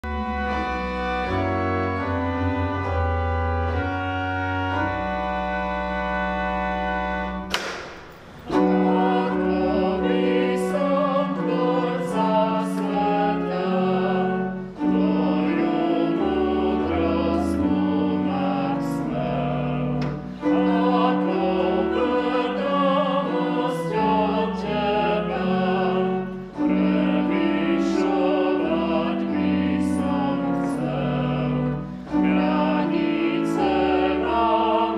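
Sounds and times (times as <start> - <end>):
church organ chords: 0.0 - 34.9
voices singing a hymn: 4.0 - 34.9.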